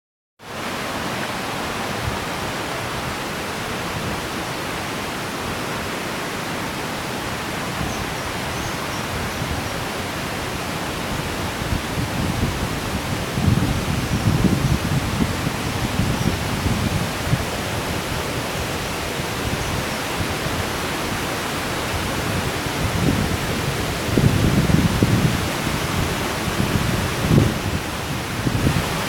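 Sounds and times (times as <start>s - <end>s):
waterfall roaring: 0.5s - 29.0s.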